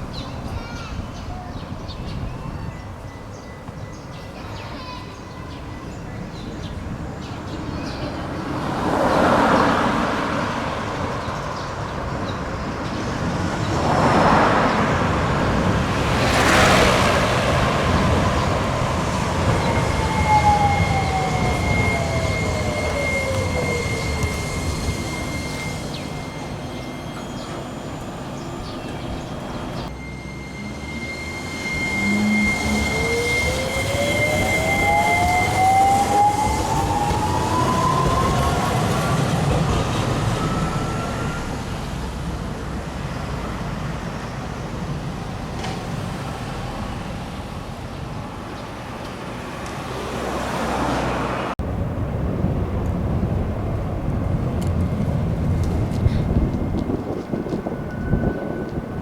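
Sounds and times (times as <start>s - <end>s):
passing road traffic: 0.0s - 59.0s
tram motor whine: 1.6s - 59.0s.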